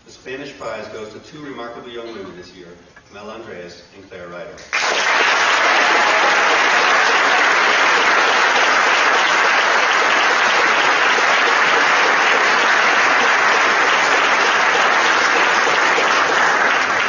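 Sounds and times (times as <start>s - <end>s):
large audience applauding: 4.7s - 17.0s.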